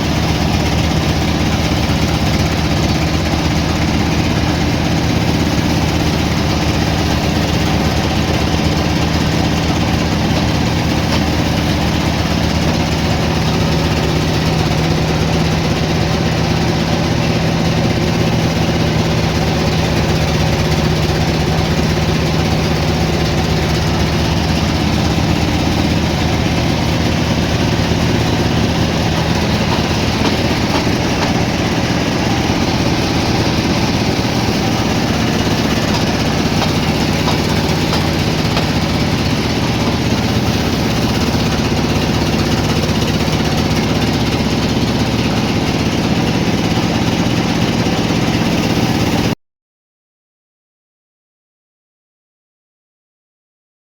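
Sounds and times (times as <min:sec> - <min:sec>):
engine running steadily: 0:00.0 - 0:49.4.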